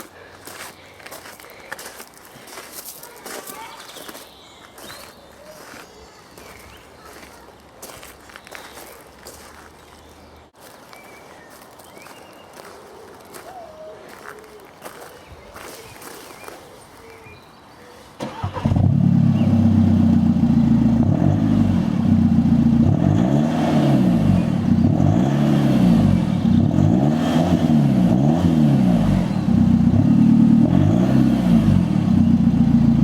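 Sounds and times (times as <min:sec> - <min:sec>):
diesel engine starting and revving: 0:18.2 - 0:33.0.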